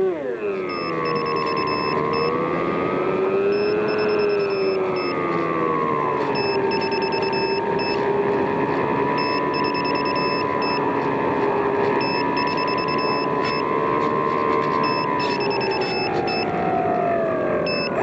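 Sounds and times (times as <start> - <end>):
high beeps: 0.7 - 2.4, 3.5 - 5.2, 6.4 - 8.0, 9.2 - 10.8, 12.0 - 13.6, 14.8 - 16.5, 17.7 - 18.0.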